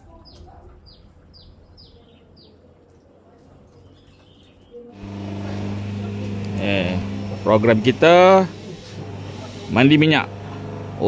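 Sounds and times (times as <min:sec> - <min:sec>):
bird chirping: 0:00.0 - 0:02.6
loud low steady hum: 0:05.0 - 0:11.0.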